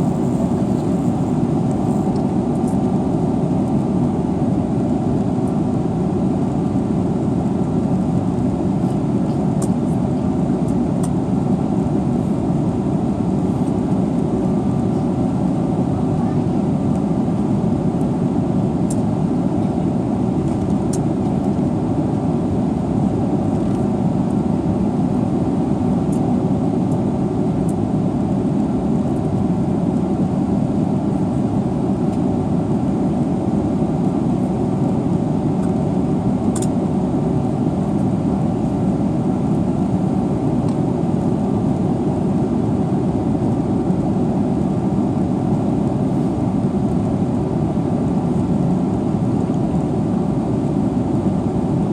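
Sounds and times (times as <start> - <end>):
airliner cabin rumble: 0.0 - 2.6.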